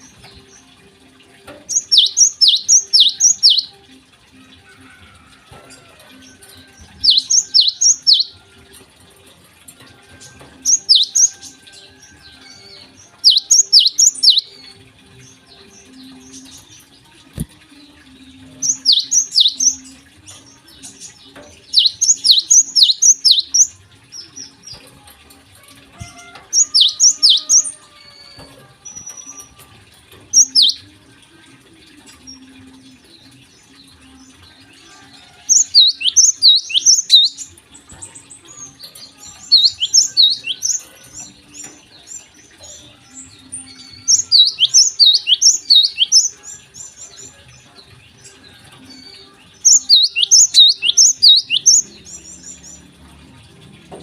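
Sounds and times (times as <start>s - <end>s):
sparrow chirping: 1.6s - 3.7s, 6.9s - 8.4s, 10.6s - 11.5s, 12.5s - 14.5s, 18.6s - 19.9s, 20.5s - 24.8s, 26.5s - 27.8s, 30.4s - 30.8s, 35.5s - 37.5s, 38.1s - 42.9s, 43.6s - 47.4s, 49.6s - 52.8s.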